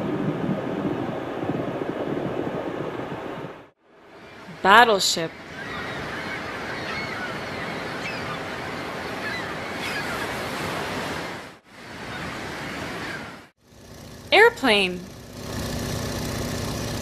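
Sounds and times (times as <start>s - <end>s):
sea waves: 0.0s - 13.6s
wind: 0.0s - 17.0s.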